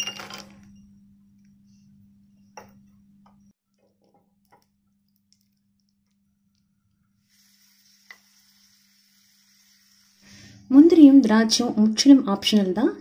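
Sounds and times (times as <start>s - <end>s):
nuts frying in a small pan: 7.1s - 10.3s.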